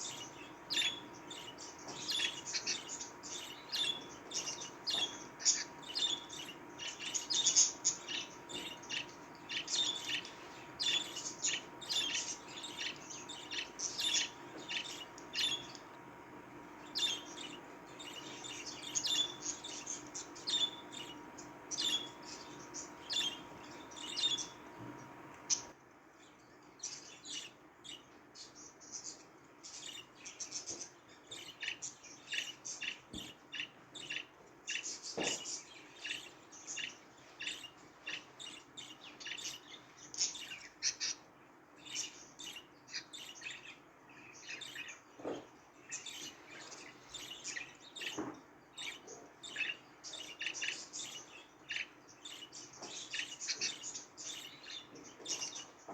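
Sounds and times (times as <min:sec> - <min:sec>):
budgerigars chattering: 0:00.0 - 0:25.7, 0:29.8 - 0:41.2, 0:44.4 - 0:55.7
faint steady hum: 0:00.0 - 0:55.9.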